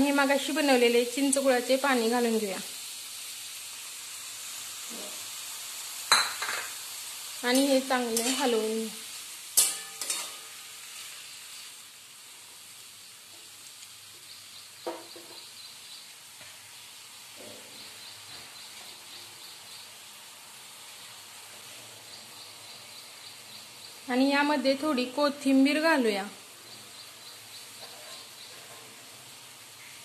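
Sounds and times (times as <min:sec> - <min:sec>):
food sizzling in a pan: 0:00.0 - 0:30.0
metal spatula scraping and clanking: 0:07.5 - 0:08.7, 0:09.6 - 0:11.1, 0:27.8 - 0:29.0.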